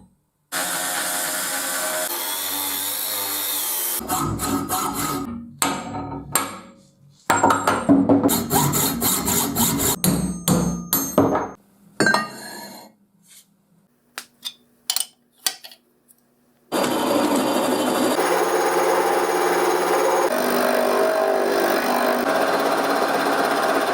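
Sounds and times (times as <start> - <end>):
steady machine noise: 16.7 - 23.9.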